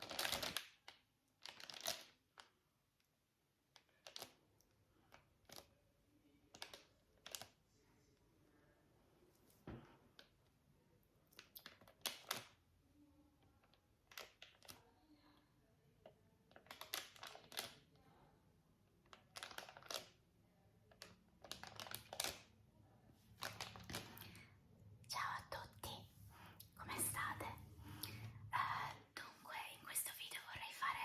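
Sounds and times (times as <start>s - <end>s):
crinkling: 0.0s - 2.6s, 16.5s - 18.0s, 19.0s - 20.2s, 20.9s - 22.5s, 23.3s - 24.5s.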